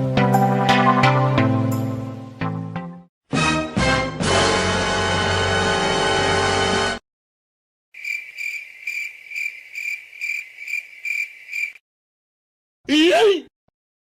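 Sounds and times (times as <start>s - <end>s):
cricket chirping: 8.0s - 11.8s.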